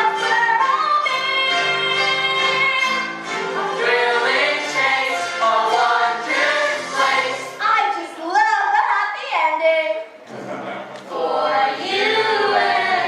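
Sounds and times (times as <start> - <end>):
young singers singing together: 0.0 - 7.7, 10.6 - 13.0
musical backing track: 0.0 - 8.6, 9.6 - 13.0.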